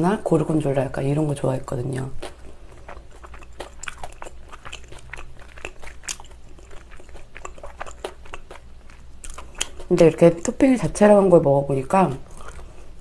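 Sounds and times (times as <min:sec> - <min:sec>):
person chewing pizza: 0:02.0 - 0:10.1, 0:12.2 - 0:13.0
wet mouth clicks: 0:02.2 - 0:09.9.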